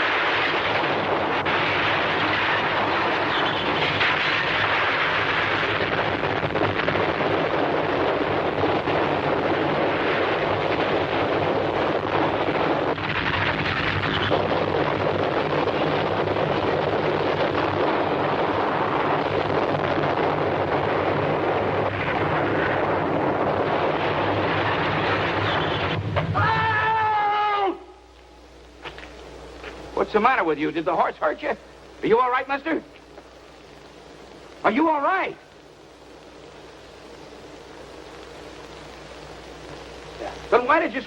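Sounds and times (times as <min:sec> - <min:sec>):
heavy earthquake rumbling: 0:00.0 - 0:26.9
man screaming: 0:26.3 - 0:28.0.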